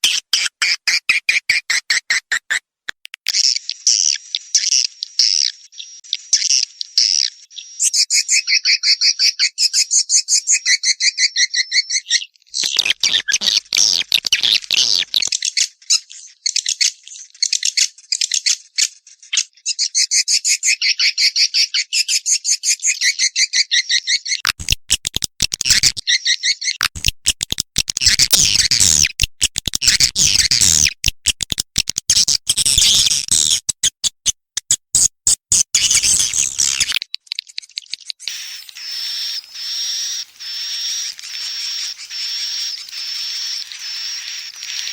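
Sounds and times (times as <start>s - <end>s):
swiftlet chirps and twitters: 28.0s - 31.4s, 32.1s - 37.0s, 38.2s - 44.9s.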